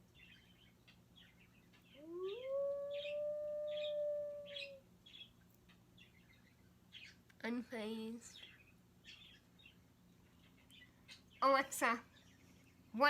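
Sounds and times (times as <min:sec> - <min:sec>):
wolf howl through smart speaker: 0:02.0 - 0:04.8.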